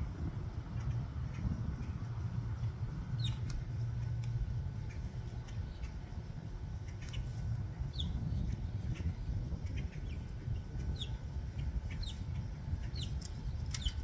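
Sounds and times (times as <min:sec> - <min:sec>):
faint hum: 0:00.0 - 0:14.0
small birds chirping: 0:03.2 - 0:04.1, 0:06.8 - 0:14.0.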